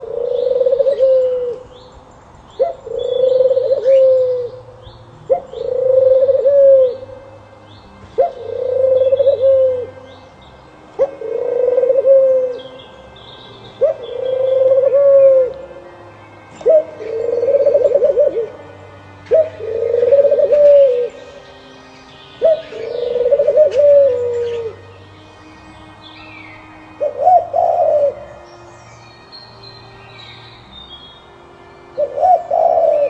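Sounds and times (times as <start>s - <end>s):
dove cooing: 0.0s - 1.7s, 2.6s - 4.7s, 5.3s - 7.1s, 8.2s - 10.0s, 11.0s - 12.9s, 13.7s - 15.8s, 16.6s - 21.5s, 22.4s - 24.9s, 27.0s - 28.2s, 32.0s - 33.0s.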